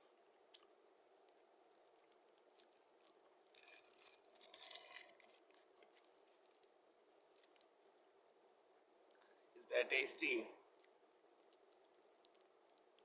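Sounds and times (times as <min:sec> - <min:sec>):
foil wrapper crinkling: 0:01.7 - 0:07.8
faint clicks: 0:10.6 - 0:13.0.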